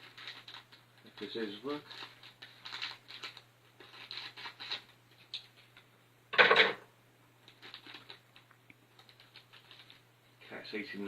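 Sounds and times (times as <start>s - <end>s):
plastic packet crinkling: 0.0s - 5.8s, 7.4s - 10.0s.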